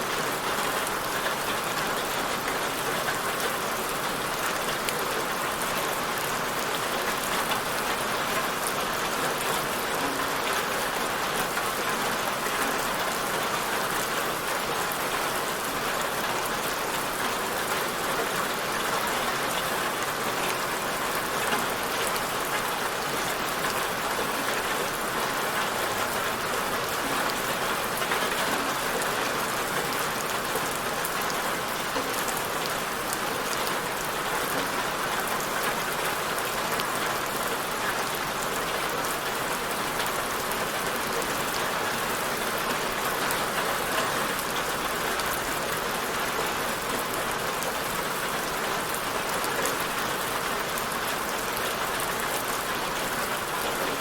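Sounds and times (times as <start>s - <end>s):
rain falling on a surface: 0.0s - 54.0s.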